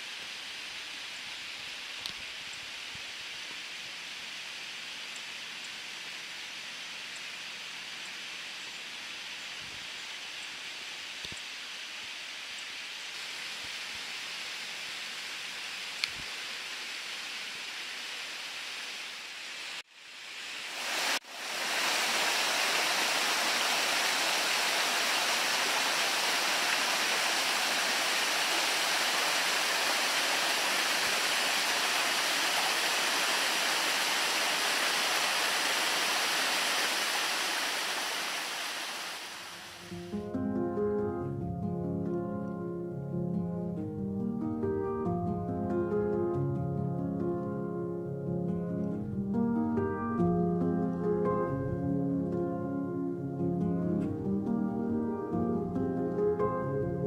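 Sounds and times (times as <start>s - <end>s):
steady hiss: 0.0s - 40.8s
waterfall rushing: 20.4s - 40.2s.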